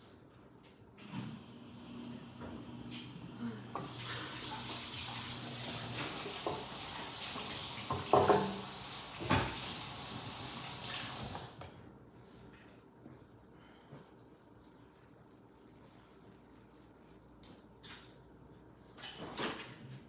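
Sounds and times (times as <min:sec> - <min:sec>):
hands being washed: 0:03.8 - 0:11.6
tap running into a sink: 0:03.8 - 0:11.7.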